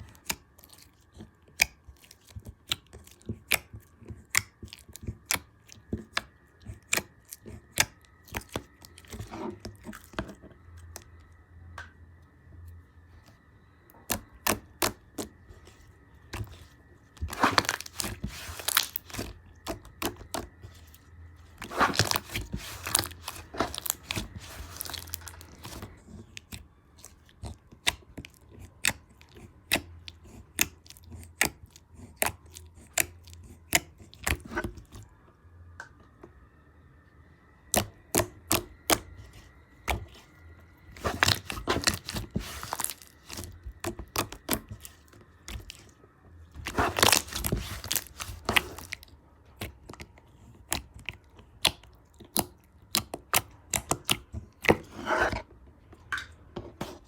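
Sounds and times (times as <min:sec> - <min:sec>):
slime crackling: 0:14.1 - 0:34.9, 0:40.9 - 0:45.9, 0:46.6 - 0:55.3.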